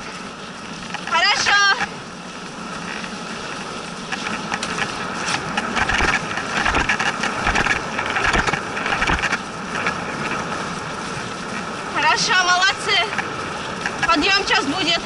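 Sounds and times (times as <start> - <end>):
sled scraping over snow: 0.0 - 15.0
sled rattling and knocking: 2.8 - 10.5.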